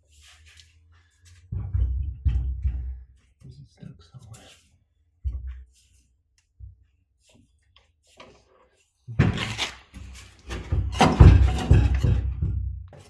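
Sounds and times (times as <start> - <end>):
car parts clunking and scraping: 9.2 - 13.0.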